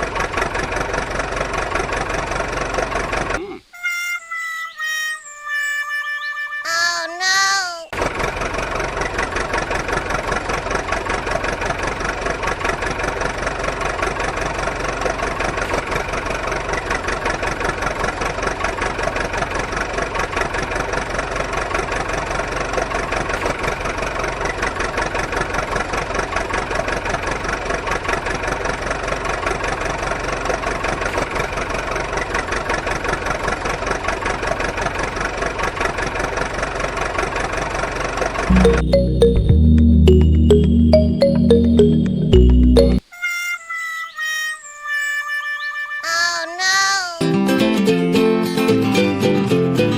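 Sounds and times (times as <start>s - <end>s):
engine idling: 0.0s - 3.6s, 8.0s - 39.2s.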